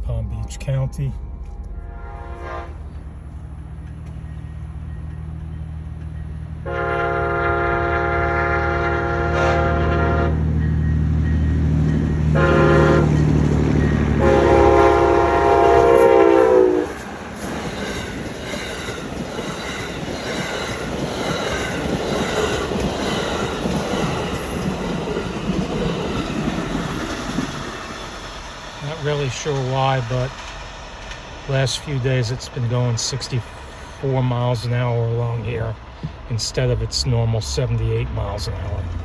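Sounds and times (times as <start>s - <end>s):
diesel locomotive engine drone: 0.0s - 39.0s
train air horn blasts: 1.8s - 2.9s, 6.6s - 10.5s, 12.3s - 13.3s, 14.0s - 17.0s
train cars clickety-clack rolling: 8.8s - 39.0s.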